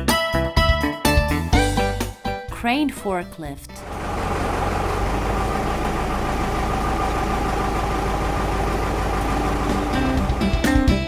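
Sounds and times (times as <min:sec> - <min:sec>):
music: 0:00.0 - 0:03.9, 0:09.2 - 0:11.0
engine idling low rumble: 0:03.7 - 0:11.0.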